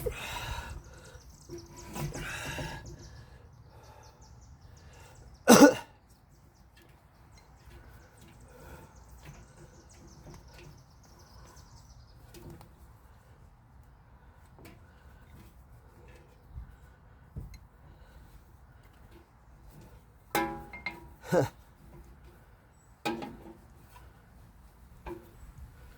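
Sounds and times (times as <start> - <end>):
short cough: 5.5 - 6.0.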